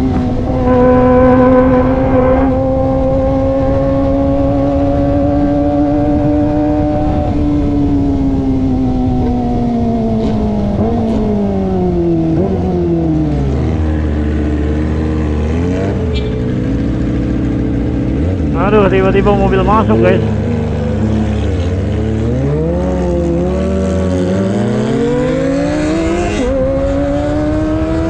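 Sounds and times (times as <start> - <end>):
wind noise: 0.0 - 12.8
motorcycle engine revving: 0.0 - 28.0.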